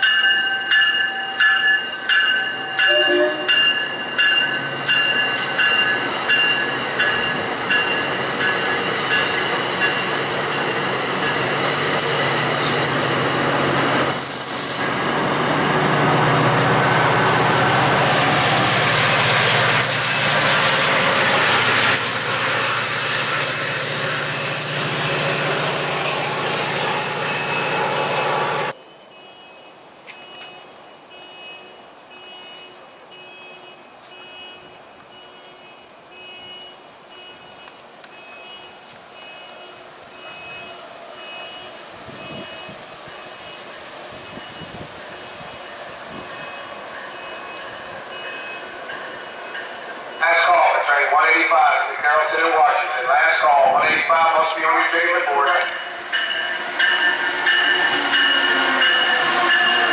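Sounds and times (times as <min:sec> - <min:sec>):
train wheels rushing on rail: 0:00.0 - 0:28.8, 0:37.7 - 0:59.9
faint high beeps: 0:28.8 - 0:42.8.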